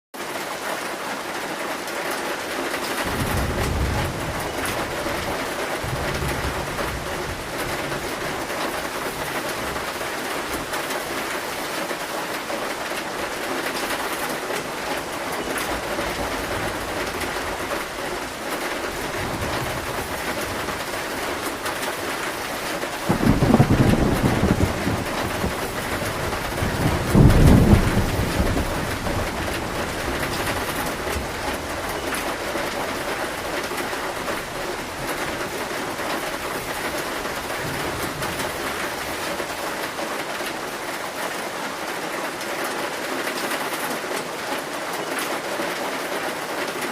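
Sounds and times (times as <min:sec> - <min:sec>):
heavy rain on a metal roof: 0:00.1 - 0:46.9
thunder rumbling: 0:02.9 - 0:40.7.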